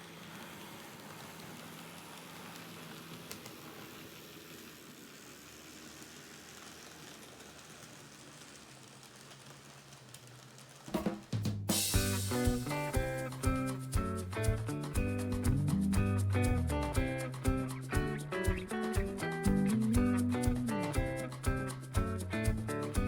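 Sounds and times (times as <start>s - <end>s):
model train rolling whir: 0.0s - 23.0s
background music: 11.8s - 23.0s.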